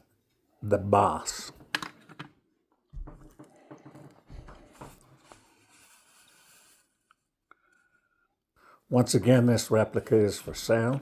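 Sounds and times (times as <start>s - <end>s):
soft knocks and rustling: 2.9s - 5.6s.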